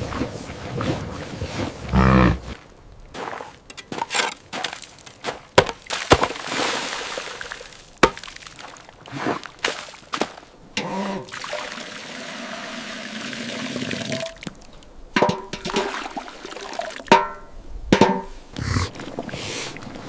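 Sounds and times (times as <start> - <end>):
water pouring: 11.0 - 17.4, 18.6 - 20.0
sharp ringing knocks: 15.2 - 15.8, 17.1 - 18.4.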